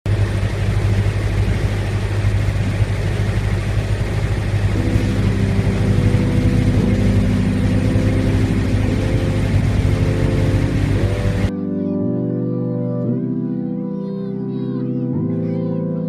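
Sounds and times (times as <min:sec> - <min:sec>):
ship engine drone: 0:00.1 - 0:11.5
sustained music chords: 0:00.1 - 0:16.0.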